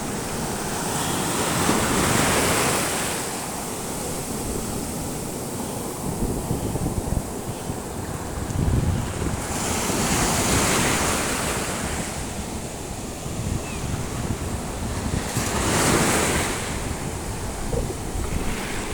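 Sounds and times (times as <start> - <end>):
sea waves surging: 0.0 - 18.9
wind rumbling on microphone: 0.0 - 18.9.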